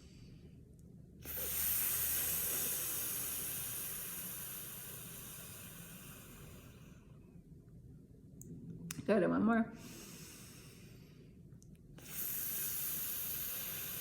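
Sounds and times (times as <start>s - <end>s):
woman exhaling through teeth: 1.2s - 6.9s, 12.0s - 14.0s.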